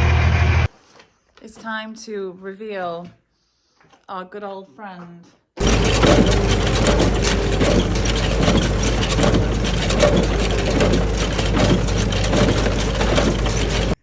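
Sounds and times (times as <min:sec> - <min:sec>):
baler mechanical clatter: 0:00.0 - 0:00.7, 0:05.6 - 0:14.0
tractor engine running: 0:00.0 - 0:00.7, 0:05.6 - 0:14.0.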